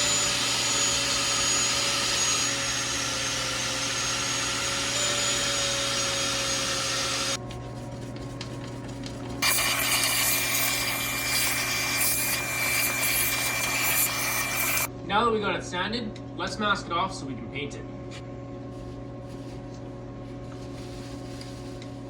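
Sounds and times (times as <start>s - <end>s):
power tool motor whining: 0.0s - 7.4s, 9.4s - 14.9s
wire wheel scraping rust: 9.4s - 14.9s.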